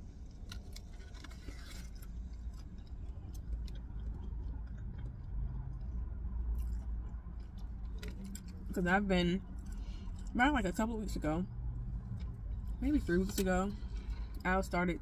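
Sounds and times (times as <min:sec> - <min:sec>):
low rumble of outside noise: 0:00.0 - 0:15.0
chewing with wet mouth clicks: 0:00.2 - 0:08.8, 0:09.4 - 0:10.4, 0:12.0 - 0:14.4.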